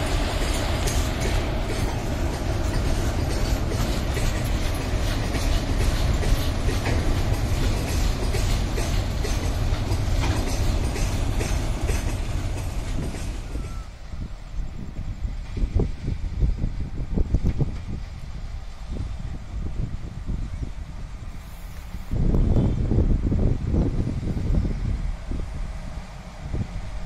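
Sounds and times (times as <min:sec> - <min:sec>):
wheels clacking over rail joints: 0:00.0 - 0:13.9
train wheels rumbling: 0:00.0 - 0:27.0.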